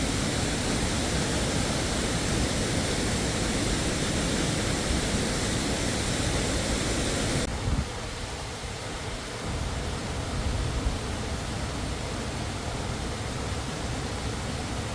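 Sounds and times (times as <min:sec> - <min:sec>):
dull water sound: 0:00.0 - 0:07.5
waterfall rushing: 0:00.0 - 0:07.5.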